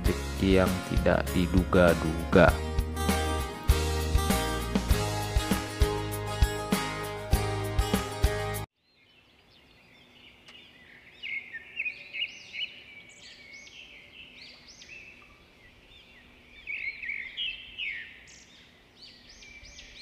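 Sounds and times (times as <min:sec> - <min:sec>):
small birds chirping: 0:08.8 - 0:20.0.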